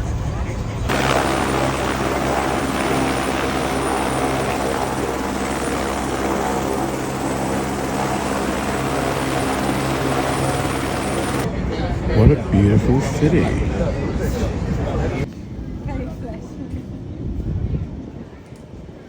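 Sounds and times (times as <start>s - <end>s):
helicopter engine and rotor: 0.8s - 11.6s.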